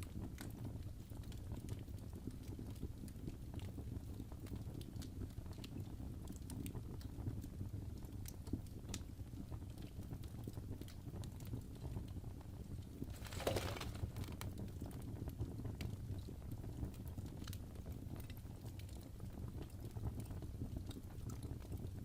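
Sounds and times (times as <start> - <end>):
wood fire crackling: 0.2 - 22.0.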